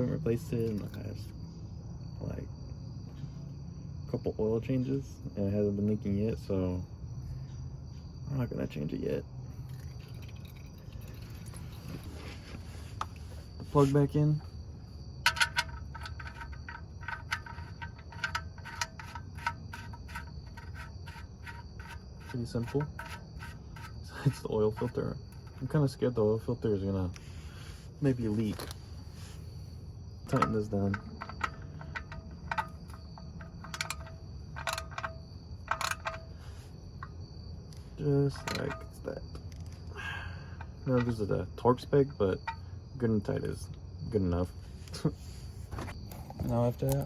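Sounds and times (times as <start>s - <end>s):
ratchet wrench clicking: 30.3s - 36.4s.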